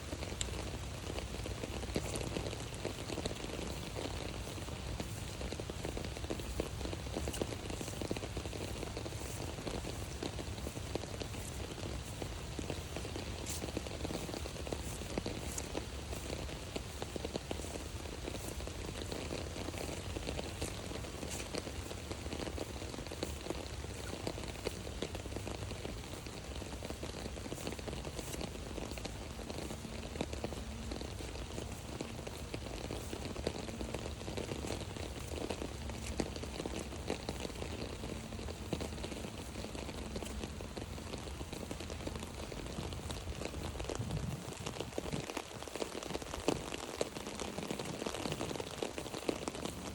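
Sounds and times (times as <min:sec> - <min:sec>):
rain on an umbrella: 0:00.0 - 0:49.9.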